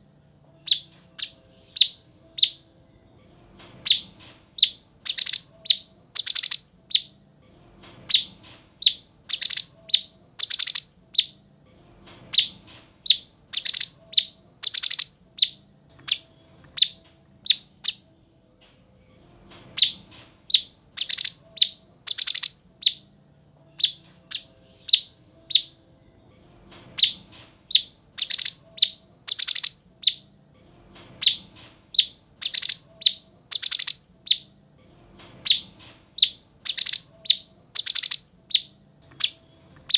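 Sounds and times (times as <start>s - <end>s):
bird singing whistled chirps: 0.7s - 2.6s, 3.9s - 7.1s, 8.2s - 11.4s, 13.1s - 16.2s, 16.8s - 18.0s, 19.8s - 23.0s, 27.8s - 30.2s, 32.0s - 34.5s, 36.2s - 39.4s.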